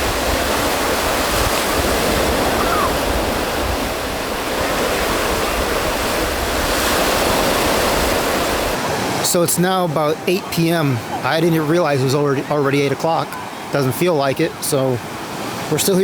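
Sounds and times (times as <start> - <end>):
wind buffeting microphone: 0.0 - 9.3
ocean surf on beach: 0.0 - 16.0.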